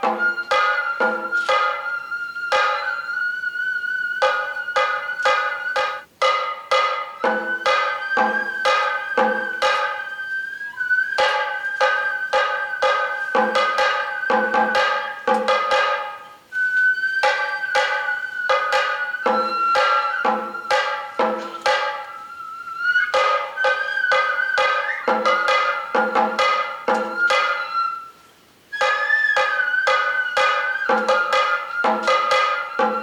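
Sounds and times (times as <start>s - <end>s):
bamboo flute long high notes: 0.0s - 33.0s
taiko drum strokes: 0.0s - 33.0s.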